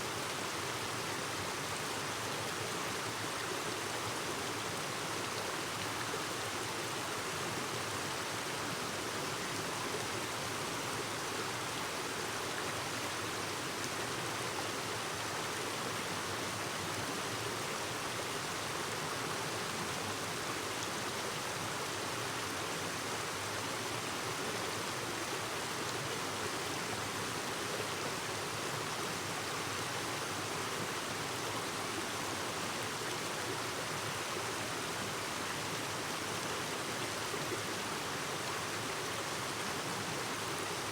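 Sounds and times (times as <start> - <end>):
stream water babbling: 0.0 - 40.9.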